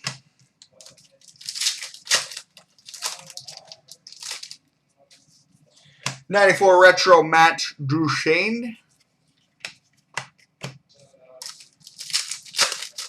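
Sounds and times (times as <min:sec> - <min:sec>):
cards and plastic crinkling: 0:00.0 - 0:05.3, 0:11.4 - 0:13.0.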